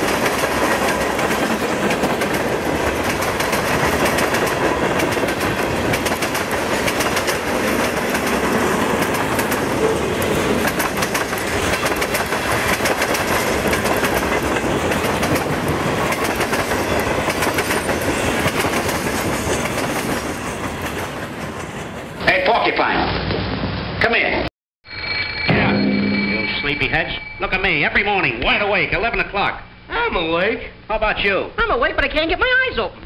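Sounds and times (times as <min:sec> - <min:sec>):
steel wheels rumbling: 0:00.0 - 0:22.2.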